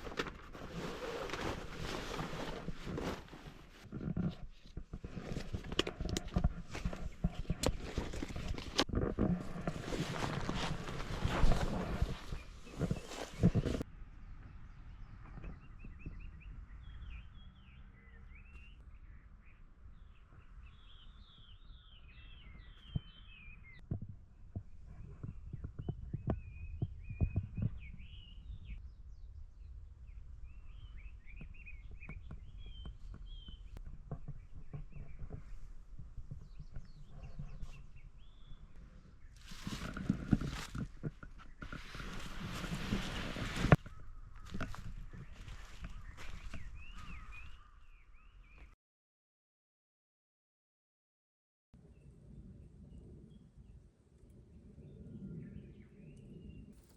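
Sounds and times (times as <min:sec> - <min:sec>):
small birds chirping: 0:09.6 - 0:23.8, 0:24.6 - 0:48.8.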